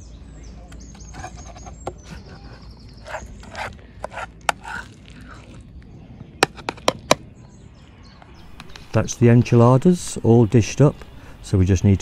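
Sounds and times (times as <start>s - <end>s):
utensil scraping food from pan: 1.0s - 5.6s.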